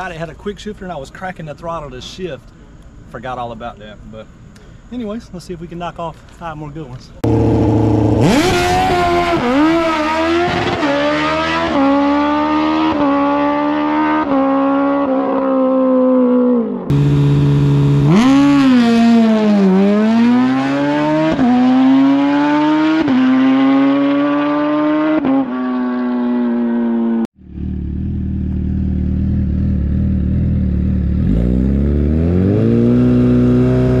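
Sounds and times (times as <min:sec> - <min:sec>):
motorcycle engine accelerating hard: 0:07.2 - 0:34.0.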